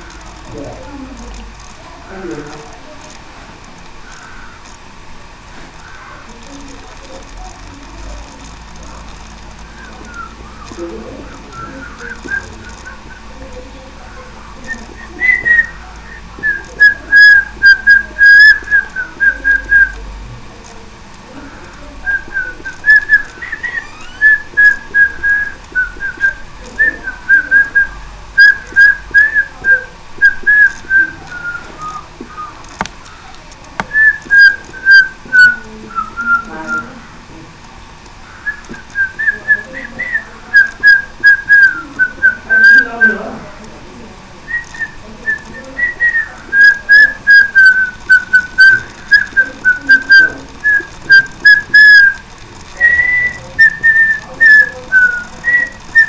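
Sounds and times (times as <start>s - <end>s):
person whistling a tune: 45.6s - 52.2s.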